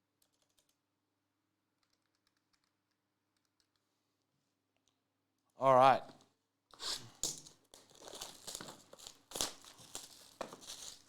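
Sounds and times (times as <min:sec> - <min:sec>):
wrapper tearing and crinkling: 0:07.1 - 0:11.0.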